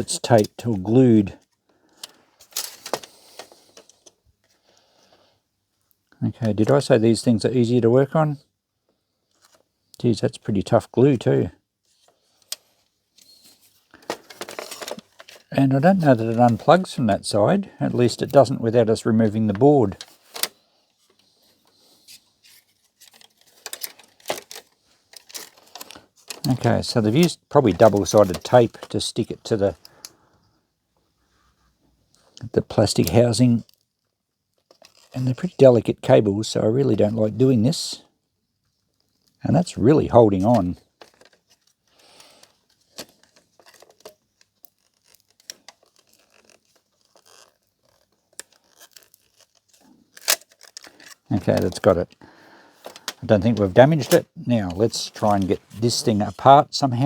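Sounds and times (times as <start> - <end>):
faint clicks of plastic parts: 0.0 - 7.0, 8.8 - 10.1, 11.8 - 16.9, 19.2 - 35.7, 38.0 - 56.1
cable peeling off tape: 34.6 - 35.2, 40.5 - 52.0.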